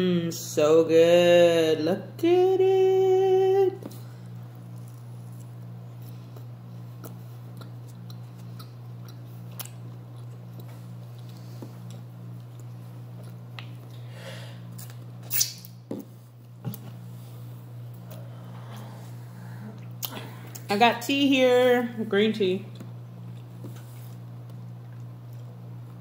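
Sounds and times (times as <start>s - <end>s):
steady low hum: 0.0s - 26.0s
chewing and mouth smacking: 4.2s - 14.0s, 14.7s - 17.0s, 19.8s - 20.7s, 22.7s - 26.0s.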